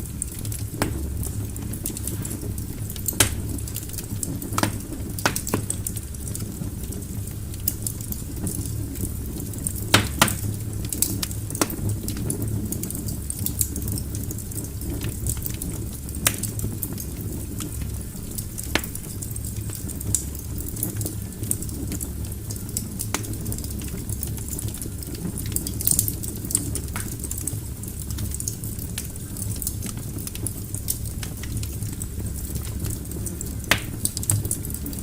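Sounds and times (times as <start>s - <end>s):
burning logs crackling and popping: 0.0s - 35.0s
rumble of fire flames: 0.0s - 35.0s.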